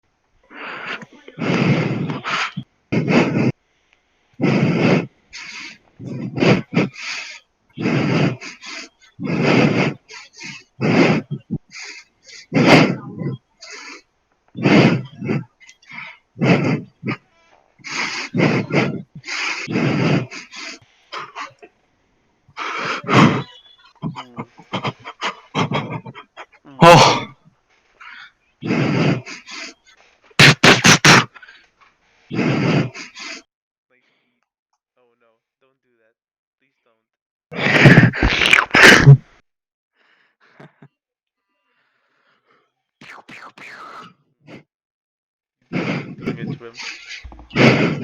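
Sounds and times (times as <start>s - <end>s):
snorts: 0.5s - 3.6s, 4.4s - 17.2s, 17.8s - 21.7s, 22.5s - 27.4s, 28.0s - 31.6s, 32.3s - 33.5s, 37.5s - 39.2s, 43.0s - 44.7s, 45.7s - 48.0s
heavy rasping breathing: 0.5s - 21.7s, 22.5s - 33.5s, 37.5s - 39.3s, 40.0s - 40.8s, 41.6s - 42.7s, 45.7s - 48.0s.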